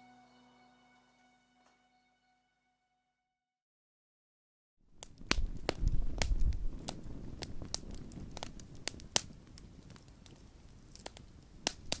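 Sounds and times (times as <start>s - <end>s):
campfire crackling and popping: 4.9s - 12.0s.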